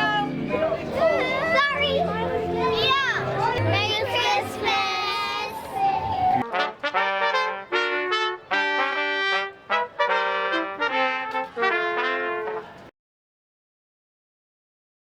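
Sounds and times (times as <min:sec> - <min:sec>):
trumpets playing chords: 0:06.4 - 0:12.9.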